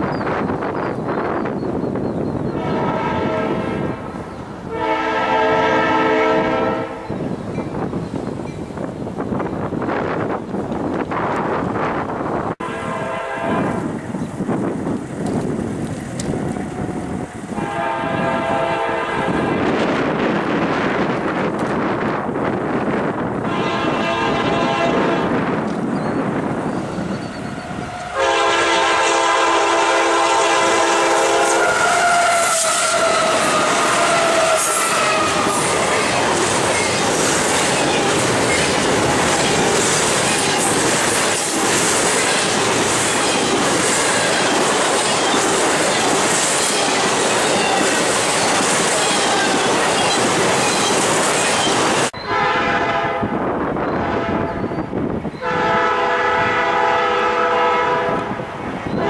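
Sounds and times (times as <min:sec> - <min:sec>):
freight train rumble and clatter: 0:00.0 - 0:59.0
locomotive air horn: 0:02.5 - 0:07.2, 0:12.6 - 0:13.9, 0:17.6 - 0:19.9, 0:23.4 - 0:25.4, 0:27.4 - 0:35.9, 0:52.2 - 0:53.4, 0:55.4 - 0:58.4.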